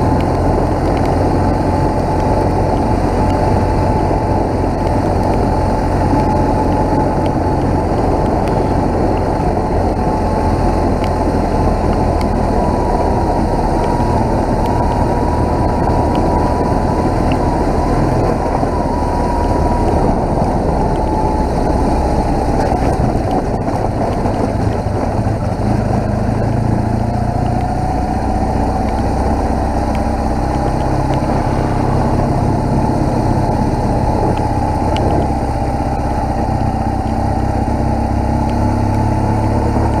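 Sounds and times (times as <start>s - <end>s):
motorcycle engine drone: 0.0s - 40.0s
wind and road rush: 0.0s - 40.0s
thin whine: 28.3s - 36.3s.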